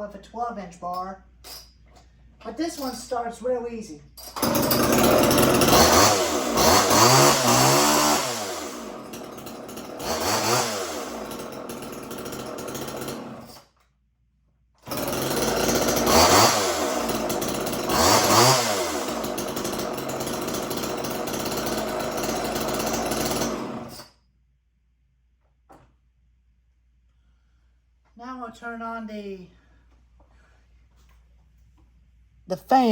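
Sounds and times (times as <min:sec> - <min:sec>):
chainsaw revving and idling: 0:04.4 - 0:13.6, 0:14.8 - 0:24.1.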